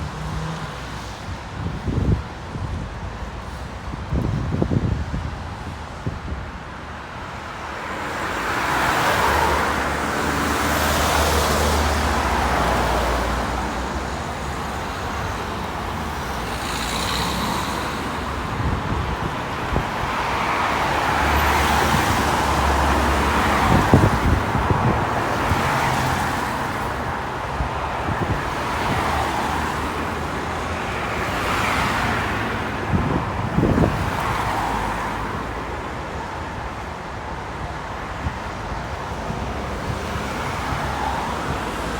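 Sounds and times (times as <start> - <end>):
road traffic passing: 0.0 - 41.9.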